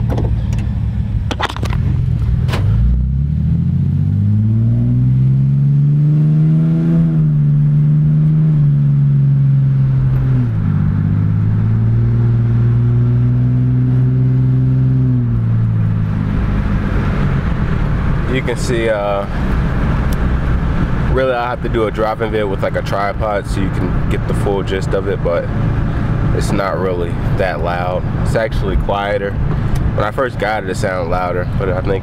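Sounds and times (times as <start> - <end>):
car engine accelerating and cruising: 0.0 - 32.0.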